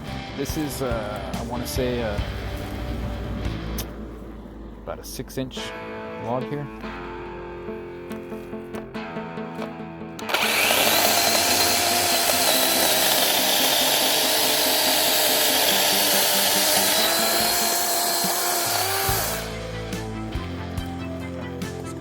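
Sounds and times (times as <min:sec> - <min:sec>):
guitar music: 0:00.0 - 0:22.0
cordless chainsaw cutting log: 0:10.2 - 0:20.1.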